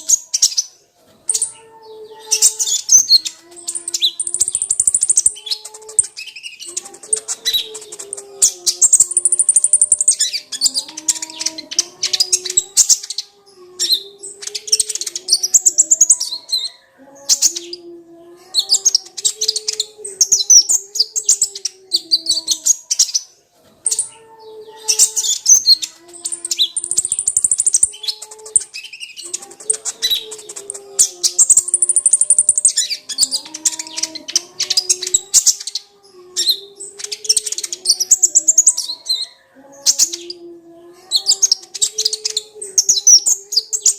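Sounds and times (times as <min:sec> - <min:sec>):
bird twittering trills: 0:00.0 - 0:17.9, 0:18.6 - 0:40.5.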